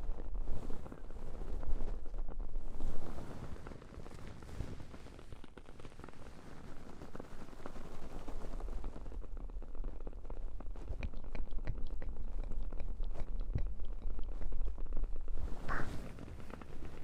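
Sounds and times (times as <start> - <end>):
candle crackling and popping: 0.1 - 17.0
hands rustling over microphone: 0.4 - 5.4, 10.6 - 17.0.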